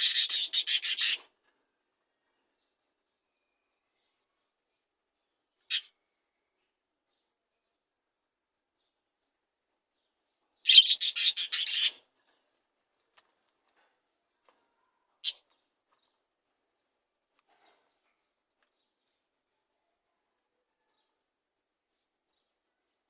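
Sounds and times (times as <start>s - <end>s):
budgerigar chirping: 0.0s - 1.2s, 10.7s - 12.0s.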